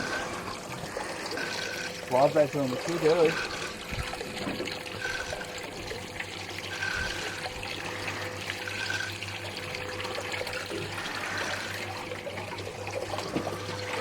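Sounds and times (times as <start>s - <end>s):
water trickling and splashing: 0.0s - 14.0s.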